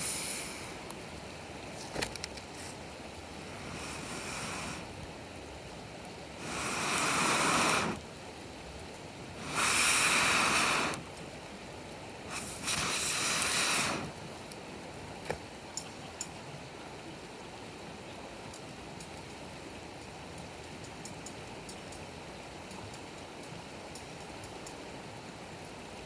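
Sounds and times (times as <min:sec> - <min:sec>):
rush of noise: 0:00.0 - 0:00.9, 0:03.4 - 0:05.0, 0:06.4 - 0:08.1, 0:09.4 - 0:11.1, 0:12.3 - 0:14.2
campfire crackling: 0:00.0 - 0:16.4.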